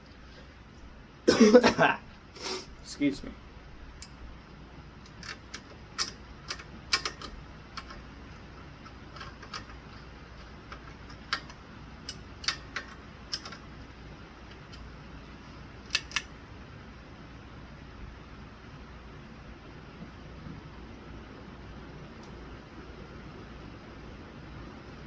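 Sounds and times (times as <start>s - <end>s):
faint low steady hum: 0.0s - 25.0s
sharp clicks and taps of metal hardware: 5.0s - 8.0s, 10.7s - 13.6s, 15.9s - 16.3s.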